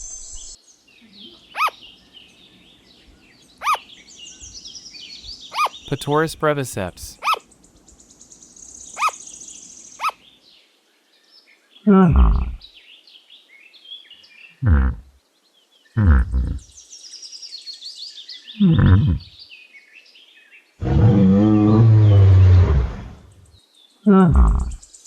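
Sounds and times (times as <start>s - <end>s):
sugar glider calling: 1.6s - 1.8s, 3.6s - 3.8s, 5.5s - 5.9s, 7.2s - 7.4s, 9.0s - 9.2s.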